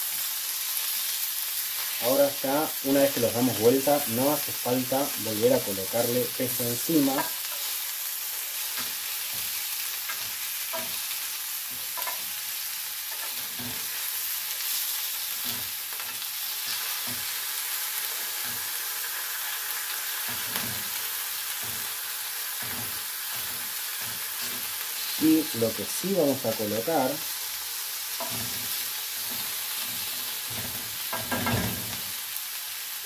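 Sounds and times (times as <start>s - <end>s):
vegetables sizzling in oil: 0.0s - 33.0s
tongs tapping a grill pan: 6.9s - 17.5s, 18.2s - 24.8s, 28.1s - 32.1s.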